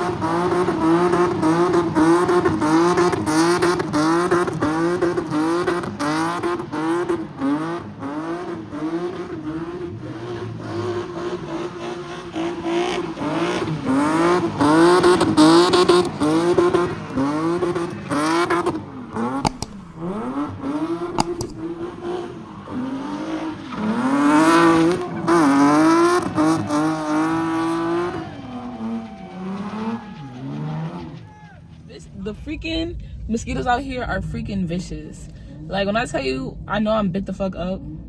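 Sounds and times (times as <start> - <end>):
car engine revving hard: 0.0 - 31.2
sharp engine pops: 18.7 - 20.2, 21.1 - 21.8.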